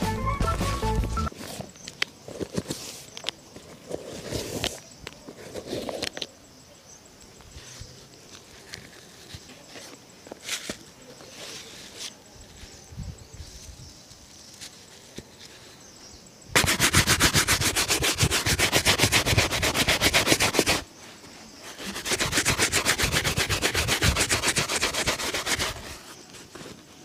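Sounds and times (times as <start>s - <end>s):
shoe being brushed: 7.6s - 15.9s, 16.6s - 27.0s.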